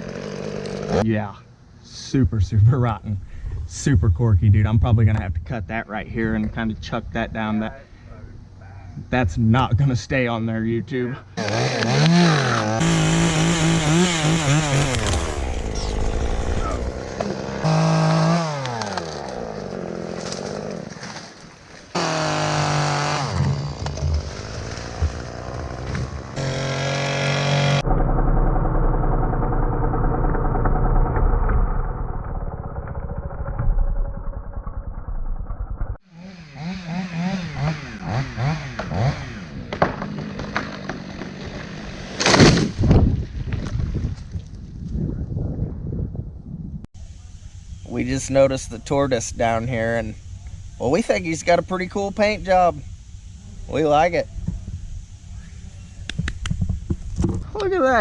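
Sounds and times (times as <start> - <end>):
chainsaw revving: 0.0 - 1.0, 11.4 - 21.2, 21.9 - 31.4, 36.0 - 42.6
muffled low rumble: 2.1 - 10.0.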